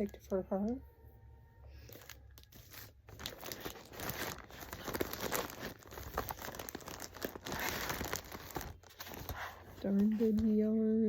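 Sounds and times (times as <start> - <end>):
packaging crinkling and rustling: 1.9 - 10.5.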